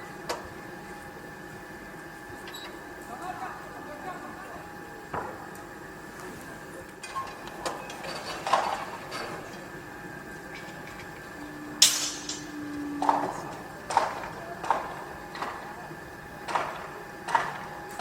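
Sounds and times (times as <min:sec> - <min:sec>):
steady background hum: 0:00.0 - 0:18.0
metallic clanks and knocks: 0:11.8 - 0:15.5.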